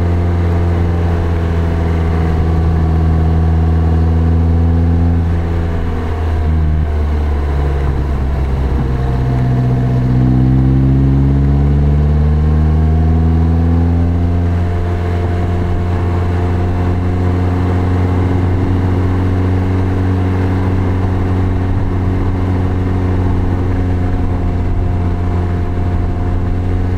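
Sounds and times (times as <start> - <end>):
car engine accelerating: 0.0 - 26.9
road and wind noise: 0.0 - 26.9.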